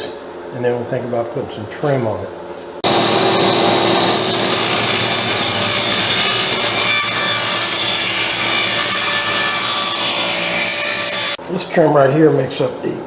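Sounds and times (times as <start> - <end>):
electric saw cutting wood: 2.8 - 11.4.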